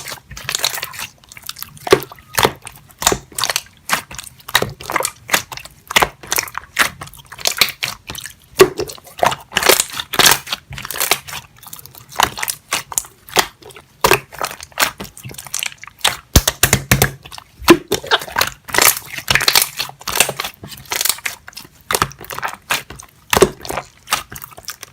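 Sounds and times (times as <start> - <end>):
wet clicks and bubble pops: 1.8 - 11.4, 12.0 - 24.9.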